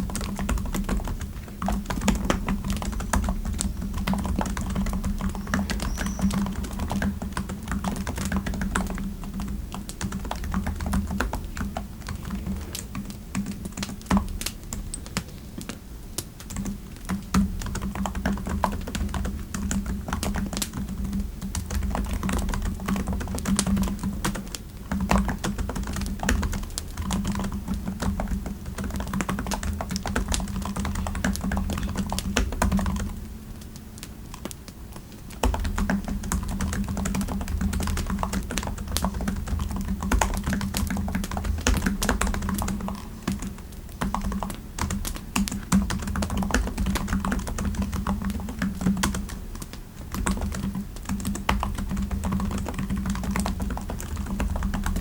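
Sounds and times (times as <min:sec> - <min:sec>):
typing on computer keyboard: 0:00.0 - 0:15.7, 0:16.4 - 0:55.0.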